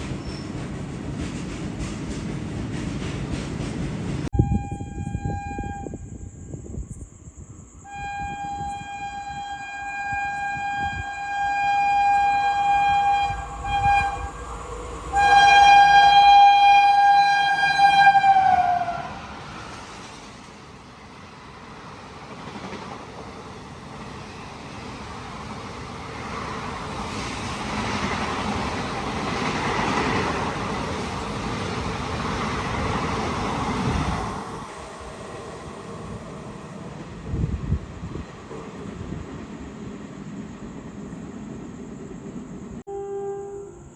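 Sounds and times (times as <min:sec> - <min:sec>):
train rushing through station: 0:00.0 - 0:42.9
locomotive horn blasts: 0:04.3 - 0:06.1, 0:07.8 - 0:14.5, 0:15.1 - 0:19.2, 0:42.9 - 0:43.9.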